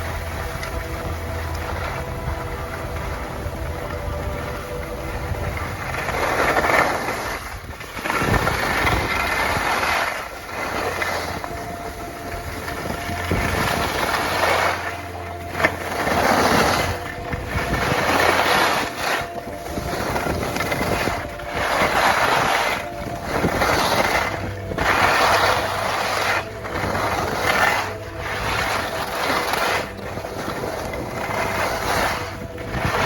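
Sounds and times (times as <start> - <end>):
skis scraping over snow: 0.0 - 33.0
wind rumble on microphone: 0.0 - 33.0.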